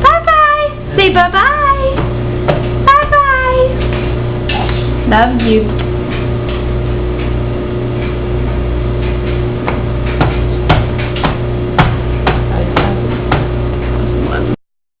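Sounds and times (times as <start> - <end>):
steady low hum: 0.0 - 14.6
sharp knocks: 1.9 - 2.8, 8.5 - 13.9.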